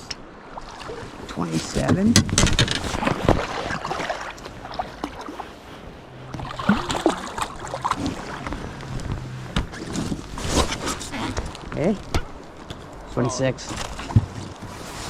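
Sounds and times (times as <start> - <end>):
low steady hum: 1.0 - 15.0
handling knocks and clicks: 8.0 - 13.1.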